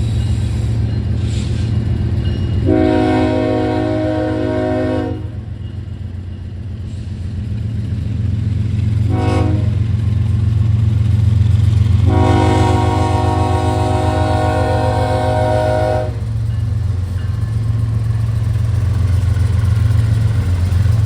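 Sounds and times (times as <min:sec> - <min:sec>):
diesel engines rumbling: 0:00.0 - 0:21.0
locomotive air horn: 0:02.6 - 0:05.4, 0:09.1 - 0:09.8, 0:12.0 - 0:16.3.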